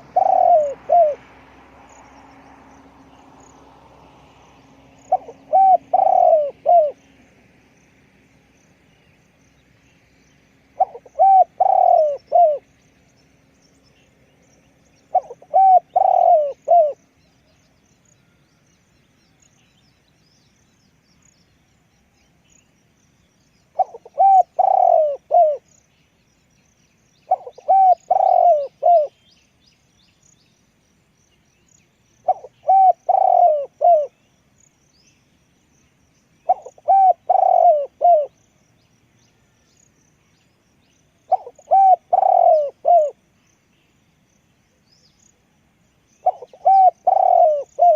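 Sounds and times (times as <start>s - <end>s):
dove cooing: 0.0s - 1.3s, 5.0s - 7.1s, 10.8s - 12.7s, 15.1s - 17.0s, 23.7s - 25.7s, 27.3s - 29.2s, 32.2s - 34.2s, 36.4s - 38.4s, 41.3s - 43.2s, 46.2s - 47.9s.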